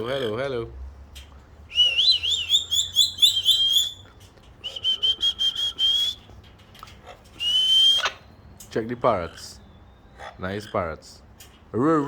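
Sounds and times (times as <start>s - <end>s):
person whistling: 1.7s - 4.0s, 4.6s - 6.2s, 7.4s - 8.0s.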